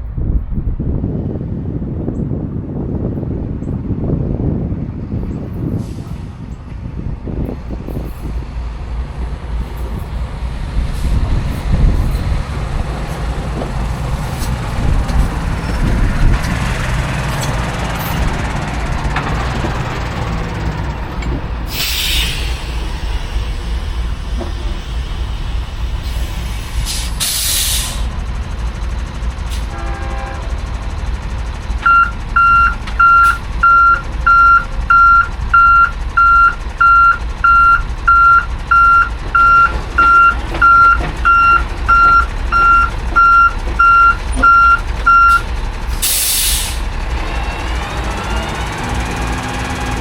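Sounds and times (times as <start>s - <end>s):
truck engine running: 0.8s - 50.0s
air hisses: 21.7s - 28.2s, 46.0s - 46.9s
reversing alarm beeping: 31.8s - 45.5s.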